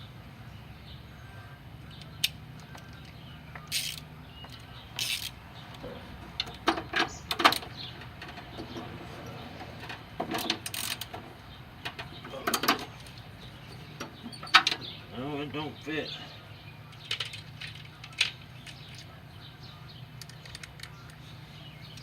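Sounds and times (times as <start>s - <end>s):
ratchet and socket clinking: 3.7s - 5.4s.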